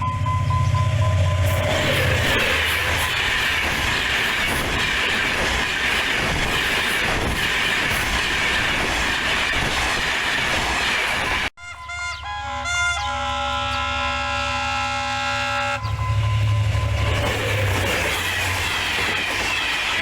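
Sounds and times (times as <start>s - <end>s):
wheels clacking over rail joints: 0.0s - 11.5s, 15.9s - 20.0s
train passing at speed: 0.0s - 20.0s.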